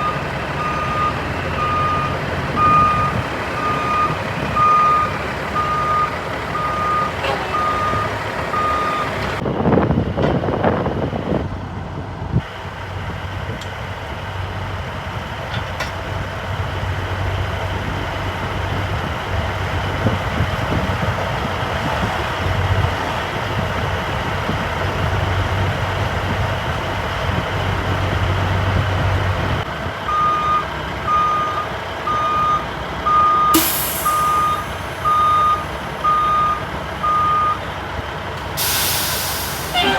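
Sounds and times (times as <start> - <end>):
reversing alarm beeps: 0.0 - 9.2, 30.1 - 37.6
truck engine running: 0.0 - 39.9
air brake hiss: 33.5 - 35.9, 38.6 - 39.9.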